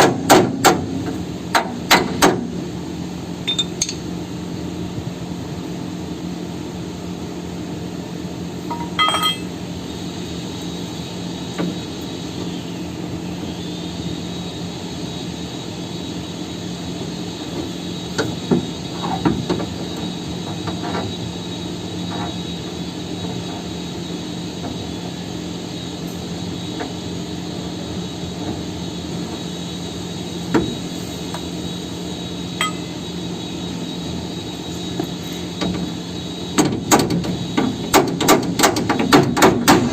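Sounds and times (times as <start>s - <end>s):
hammer striking steel: 3.5s - 4.0s, 8.7s - 9.5s, 32.6s - 33.1s
high-pitched whine: 8.6s - 11.2s, 32.1s - 34.8s
machine hum: 31.7s - 34.5s.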